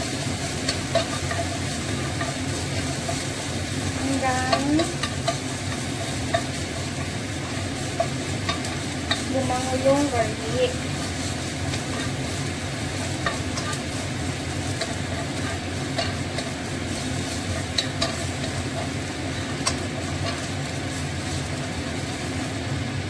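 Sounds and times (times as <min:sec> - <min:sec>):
garlic sizzling in oil: 0:00.0 - 0:23.0
steady low hum: 0:00.0 - 0:23.0
fork clicking against pan: 0:04.5 - 0:09.3, 0:14.7 - 0:16.5, 0:17.6 - 0:18.9, 0:19.5 - 0:20.5.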